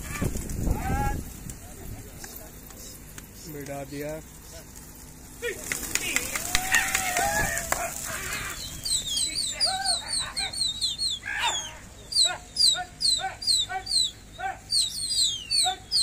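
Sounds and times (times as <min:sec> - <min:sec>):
birds chirping: 0:00.0 - 0:16.0
lower short bird calls: 0:06.0 - 0:16.0.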